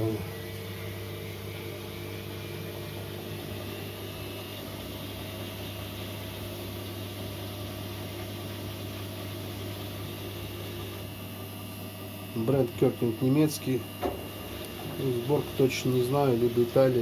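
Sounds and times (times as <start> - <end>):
washing machine spinning: 0.0 - 17.0.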